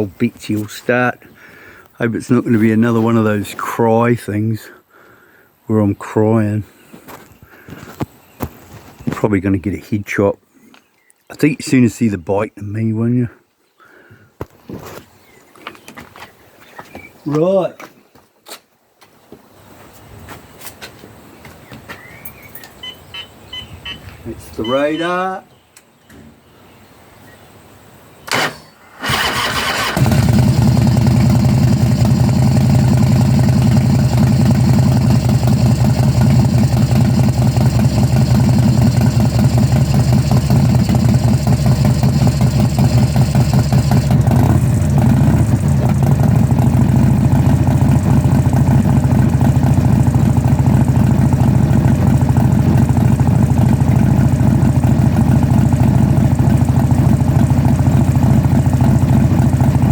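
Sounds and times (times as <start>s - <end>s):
car engine cranking and running: 28.3s - 59.9s.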